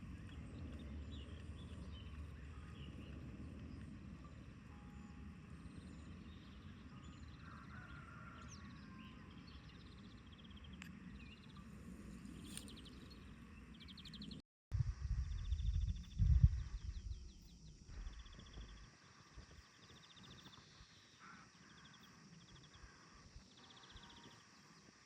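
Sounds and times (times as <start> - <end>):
low steady rumble: 14.8 - 18.9.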